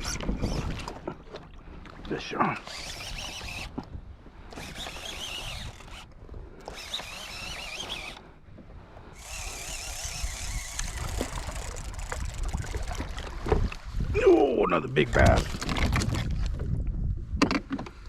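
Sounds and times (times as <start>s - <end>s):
wind rumble on microphone: 0.0s - 1.2s, 8.8s - 14.4s, 15.0s - 18.0s
fishing reel drag squealing: 2.6s - 3.7s, 4.5s - 8.3s, 9.2s - 12.8s.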